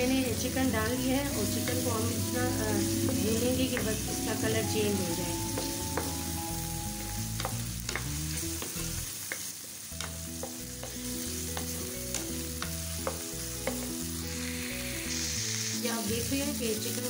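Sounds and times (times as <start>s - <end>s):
chicken sizzling in oil: 0.0s - 17.0s
spatula clicking against pan: 7.4s - 13.9s.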